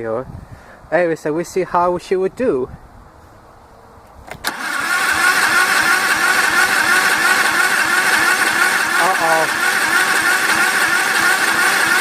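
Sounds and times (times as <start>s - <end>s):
lawn mower engine cranking: 4.4s - 12.0s.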